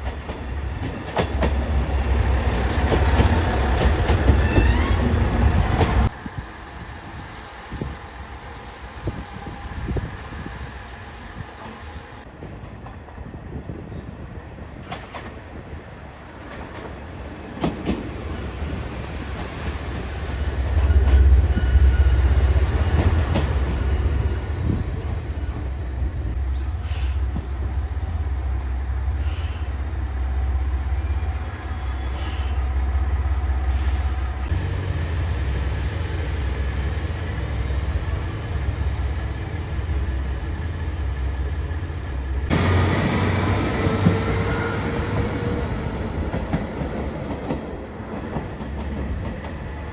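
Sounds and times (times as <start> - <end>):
diesel railcar rumbling: 0.0 - 49.9
short high squeals: 4.4 - 6.1, 26.4 - 27.7, 30.9 - 32.8, 33.4 - 34.5.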